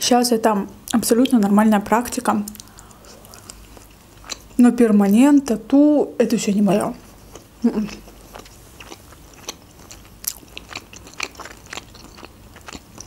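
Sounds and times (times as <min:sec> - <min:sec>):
sharp clicks and mouth sounds: 0:02.4 - 0:04.6
person chewing food: 0:02.5 - 0:04.6, 0:07.0 - 0:13.0.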